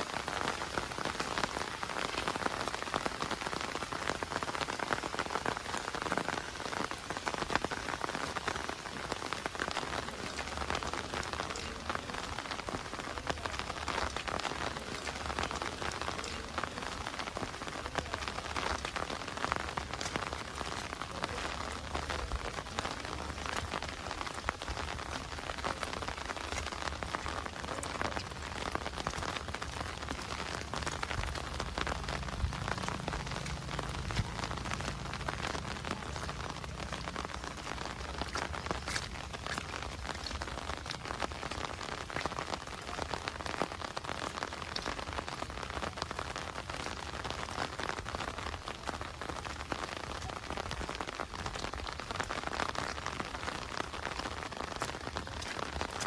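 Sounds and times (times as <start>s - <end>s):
heavy rain falling: 0.0s - 56.0s
low steady rumble: 30.2s - 38.6s.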